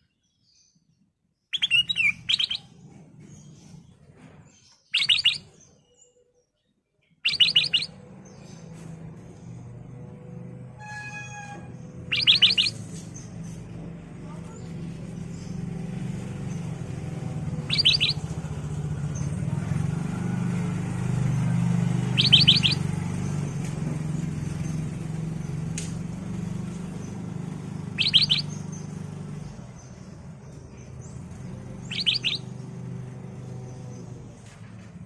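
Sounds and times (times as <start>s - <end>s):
bulbul calling: 1.5s - 2.7s, 4.9s - 5.6s, 7.2s - 7.9s, 10.8s - 13.4s, 16.5s - 19.4s, 22.0s - 23.4s, 27.8s - 29.0s, 29.8s - 32.6s.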